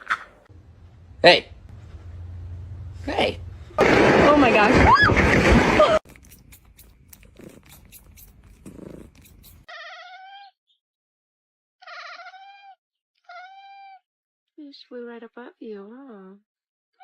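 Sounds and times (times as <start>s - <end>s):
cat meowing: 9.7s - 10.6s, 11.8s - 14.0s.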